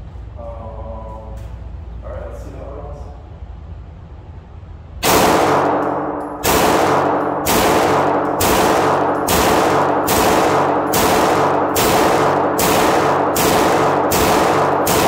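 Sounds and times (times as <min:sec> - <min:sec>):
pistol shots: 0:05.0 - 0:15.0.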